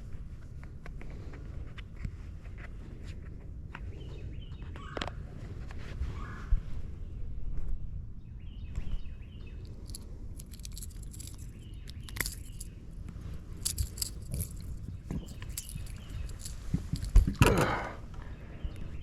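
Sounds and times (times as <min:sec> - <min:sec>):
birds chirping: 0:08.5 - 0:19.0.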